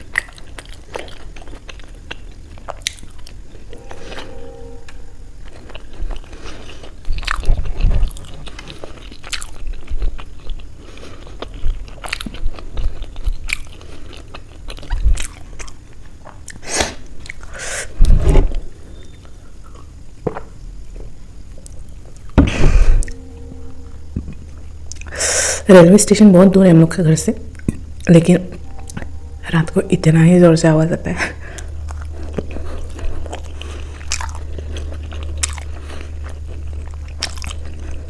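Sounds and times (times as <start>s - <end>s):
chewing soft food: 0.0s - 17.6s, 31.3s - 38.0s.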